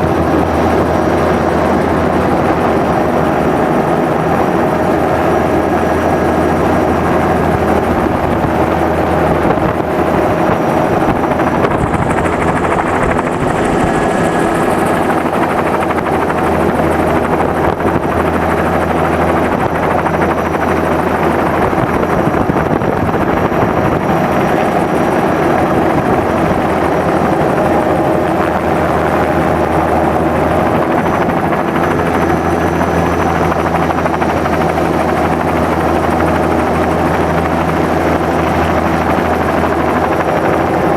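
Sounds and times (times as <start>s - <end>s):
helicopter rotor and engine: 0.0s - 40.9s.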